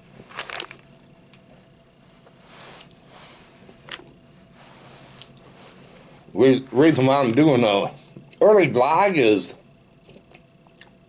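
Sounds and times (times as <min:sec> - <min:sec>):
man chewing food: 0:05.2 - 0:05.5, 0:10.0 - 0:11.0.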